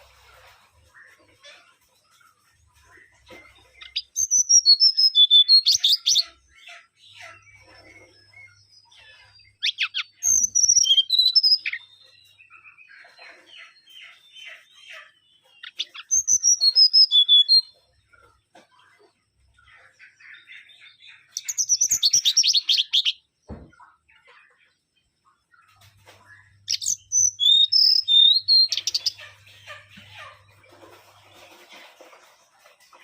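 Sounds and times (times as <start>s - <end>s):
bird whistling song: 3.8s - 6.4s, 9.2s - 12.8s, 15.6s - 17.8s, 21.3s - 23.2s, 26.6s - 29.2s
soft bird chattering calls: 26.4s - 30.6s.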